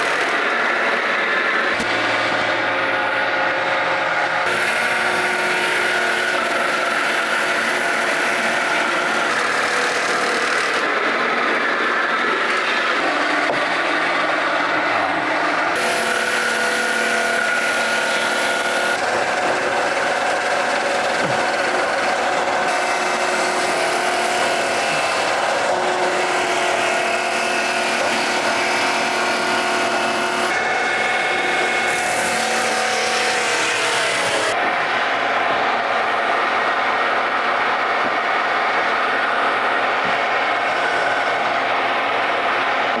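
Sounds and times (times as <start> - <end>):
sawmill engine droning: 0.0 - 43.0
saw blade cutting log: 4.4 - 35.0.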